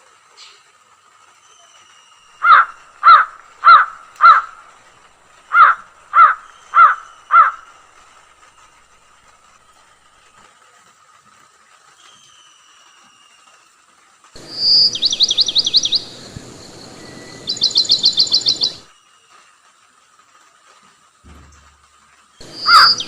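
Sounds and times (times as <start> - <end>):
crow cawing: 2.4 - 4.7, 5.5 - 7.7, 14.4 - 18.9, 22.4 - 23.0.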